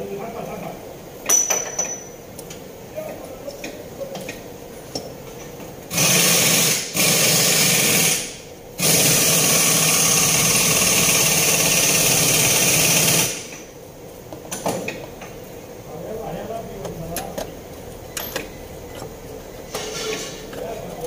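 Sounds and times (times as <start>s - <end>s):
electric power tool running: 5.9s - 13.5s.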